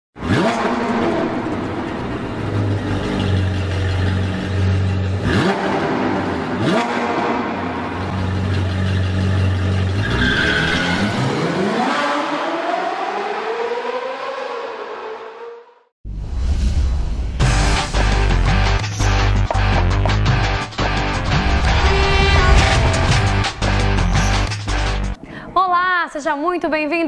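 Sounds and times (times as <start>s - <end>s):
sports car engine revving: 0.2s - 15.0s.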